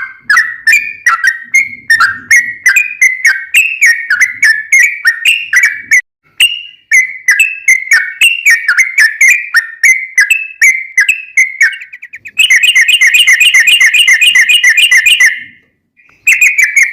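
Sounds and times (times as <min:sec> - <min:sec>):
bird singing whistled notes: 0:00.0 - 0:16.9.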